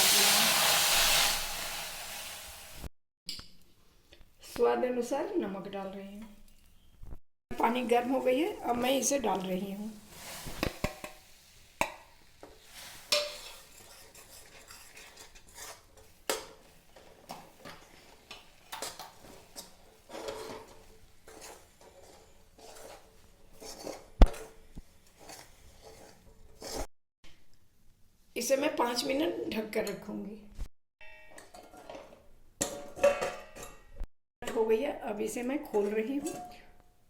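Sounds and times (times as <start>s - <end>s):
spoon stirring and scraping bowl: 12.4s - 26.9s, 35.7s - 36.7s.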